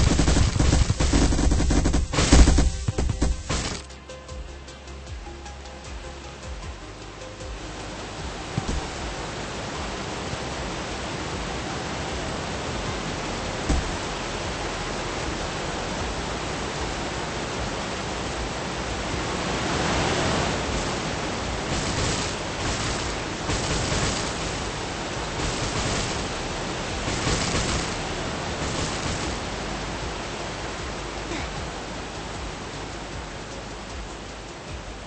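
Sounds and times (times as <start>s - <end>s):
steady rushing hiss: 0.0s - 35.0s.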